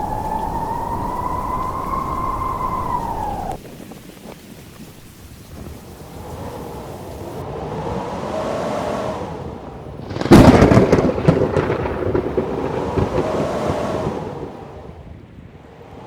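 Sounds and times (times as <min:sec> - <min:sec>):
loud rumbling crack: 0:00.0 - 0:04.1, 0:10.0 - 0:14.8
howling blizzard wind: 0:00.0 - 0:16.0.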